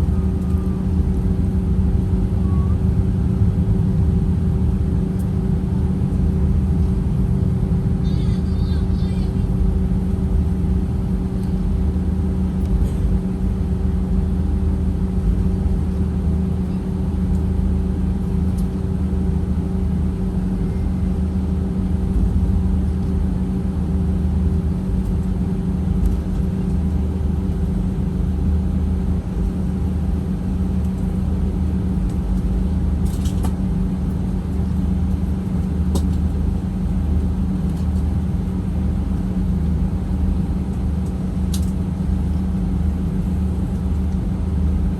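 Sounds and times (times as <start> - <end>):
jet engines droning in cabin: 0.0 - 44.9.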